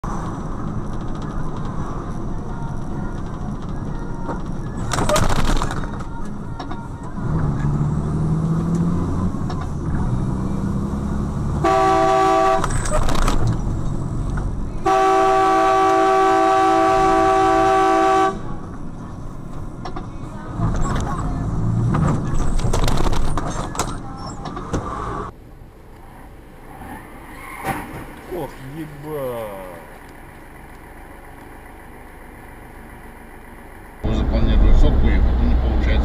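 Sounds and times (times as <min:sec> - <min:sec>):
road and engine noise: 0:00.0 - 0:36.0
car horn honking: 0:11.6 - 0:12.9, 0:14.8 - 0:18.5.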